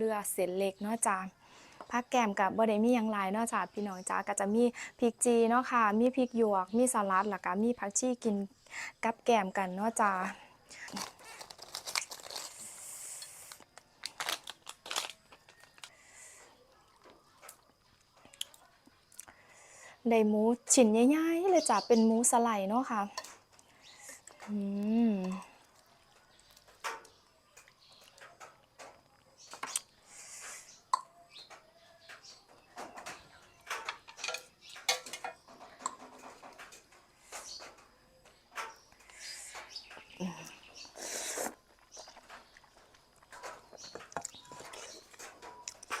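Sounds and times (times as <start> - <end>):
person chewing and slurping: 40.9 - 42.8.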